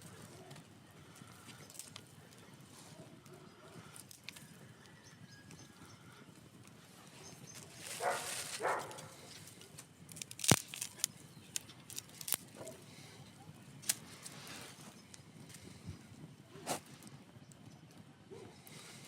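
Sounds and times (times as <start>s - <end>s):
campfire crackling and popping: 0.0s - 19.0s
rough rustling bursts: 7.4s - 13.1s.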